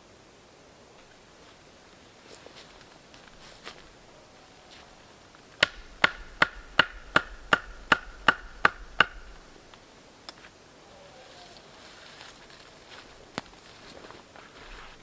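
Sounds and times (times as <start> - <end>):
hand tool striking wood: 5.6 - 9.5.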